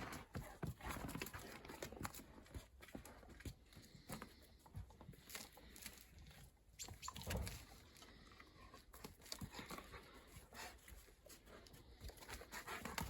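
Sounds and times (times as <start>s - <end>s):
dog paws and ball tapping ground: 0.0s - 6.0s.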